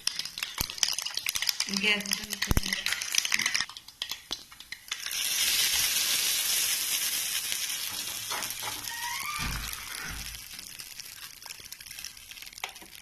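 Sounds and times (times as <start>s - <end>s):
seeds popping in hot oil: 0.0s - 13.0s
hot oil hissing: 4.9s - 13.0s.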